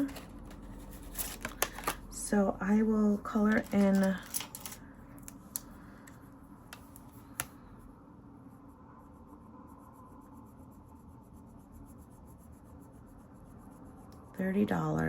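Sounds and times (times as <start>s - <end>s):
pen strokes on paper: 8.5s - 15.0s.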